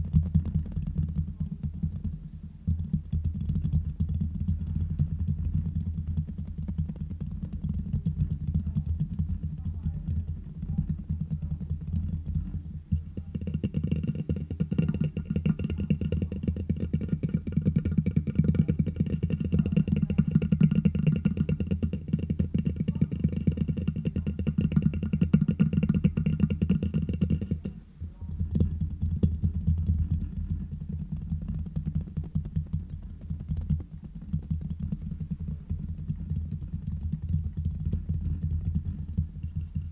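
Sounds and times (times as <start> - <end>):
fingers tapping on microphone: 0.0 - 39.9
faint steady ringing tone: 35.2 - 39.9.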